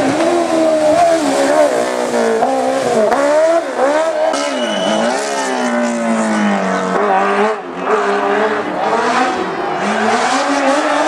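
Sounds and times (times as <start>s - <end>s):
racing car engine revving: 0.0s - 11.0s.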